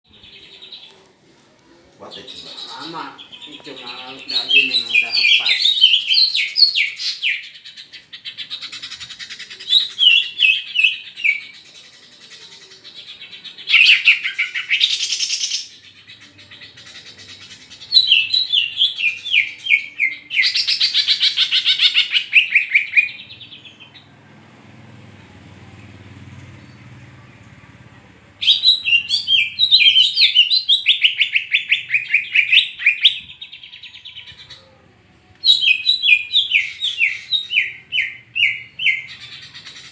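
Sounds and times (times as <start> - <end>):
bird singing whistles and trills: 9.6 - 11.6, 17.4 - 23.3, 28.4 - 34.5, 35.4 - 39.9.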